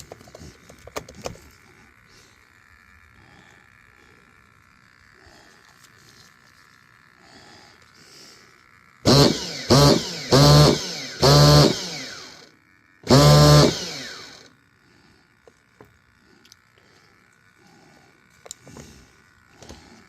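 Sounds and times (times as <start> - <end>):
nitro engine spinning up: 8.5 - 14.6.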